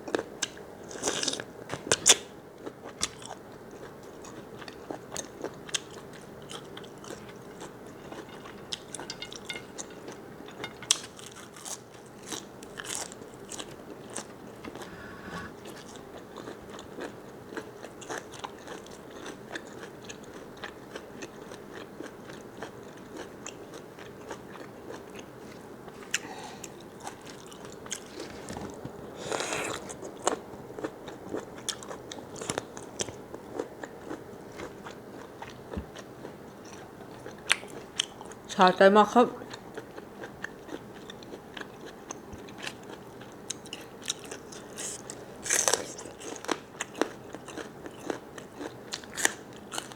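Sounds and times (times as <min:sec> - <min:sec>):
person chewing crunchy food: 0:00.0 - 0:38.4, 0:39.5 - 0:49.9.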